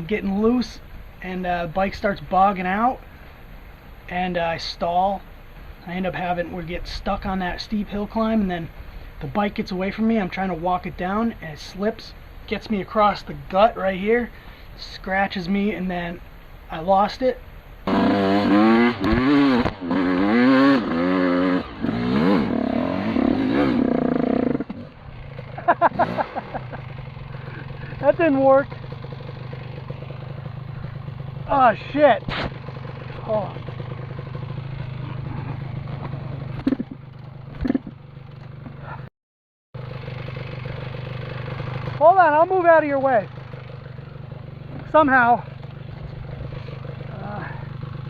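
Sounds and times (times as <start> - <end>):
two-stroke engine revving: 17.8 - 39.1, 39.8 - 48.0
sharp clattering knocks: 35.9 - 38.5.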